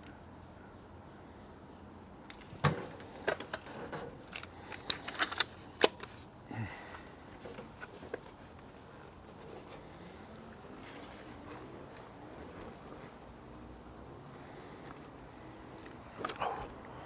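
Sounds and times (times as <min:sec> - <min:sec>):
clicks and knocks of handled objects: 0:02.2 - 0:06.3.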